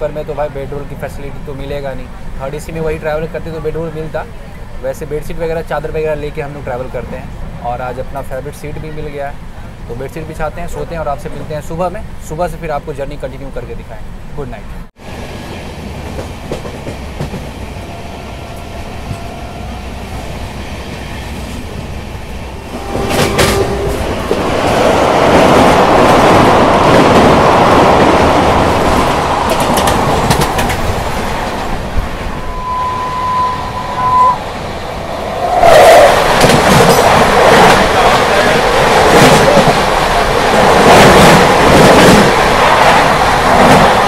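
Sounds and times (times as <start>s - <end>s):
passing train rush: 0.0s - 44.0s
train rumble and wheel clatter: 0.0s - 44.0s
short high tone: 32.4s - 34.5s.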